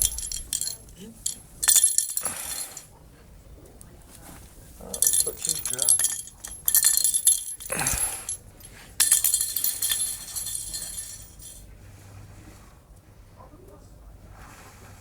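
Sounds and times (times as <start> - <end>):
light metallic jingling: 0.0 - 2.9, 4.8 - 11.6.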